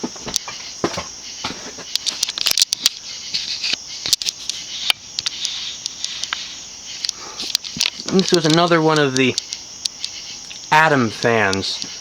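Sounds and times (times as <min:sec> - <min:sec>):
sharp clicks and ticks: 0:04.1 - 0:06.4, 0:07.0 - 0:10.7.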